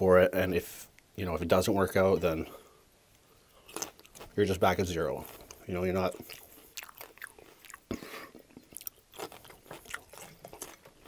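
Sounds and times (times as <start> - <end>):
chewing crunchy food: 3.2 - 11.0.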